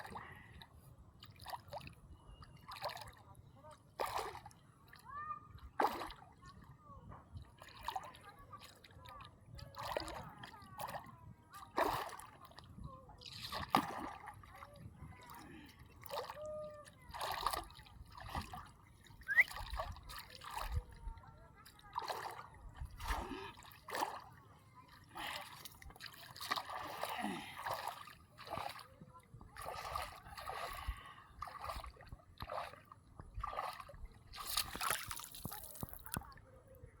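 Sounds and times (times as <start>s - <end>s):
water splashing and sloshing: 0.0s - 36.7s
water splashing: 17.1s - 20.8s, 25.0s - 28.9s, 29.6s - 36.4s.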